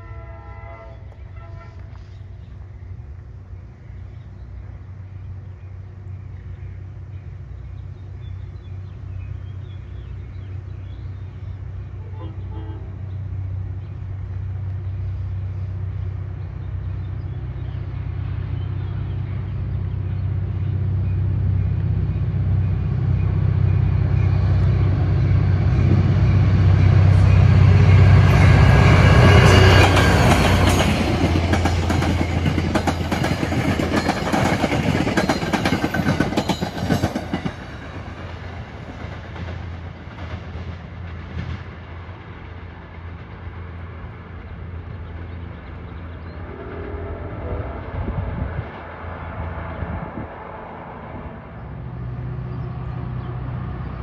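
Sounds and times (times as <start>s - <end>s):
diesel locomotive engine drone: 0.0s - 54.0s
wheels clicking over rail joints: 29.8s - 43.6s.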